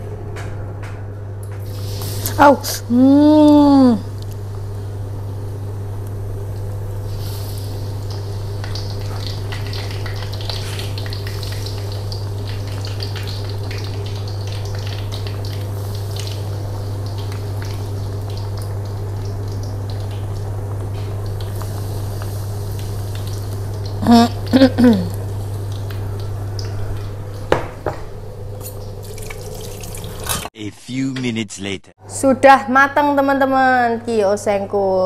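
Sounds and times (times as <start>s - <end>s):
steady low hum: 0.0s - 33.2s
food sizzling in hot oil: 7.1s - 20.5s, 28.6s - 30.5s.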